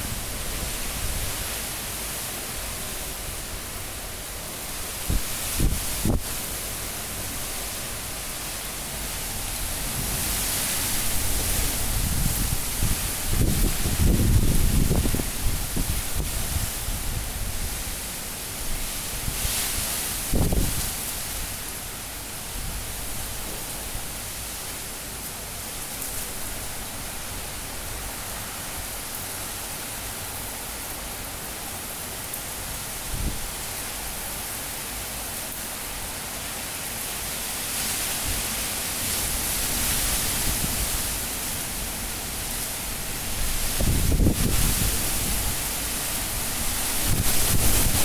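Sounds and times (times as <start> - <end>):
strong wind blowing: 9.7 - 17.9, 20.3 - 20.9, 43.0 - 48.0.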